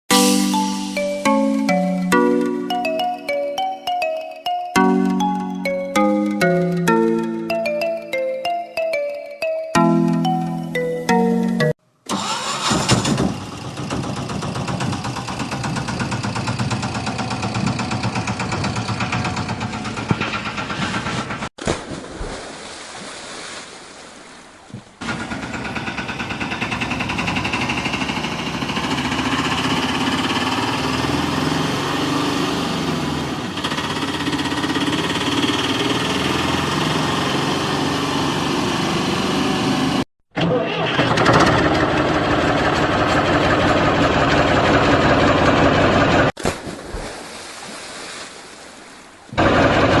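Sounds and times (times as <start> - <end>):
vehicle engine idling: 12.2 - 21.5, 25.0 - 32.2, 32.8 - 40.0, 41.0 - 46.3.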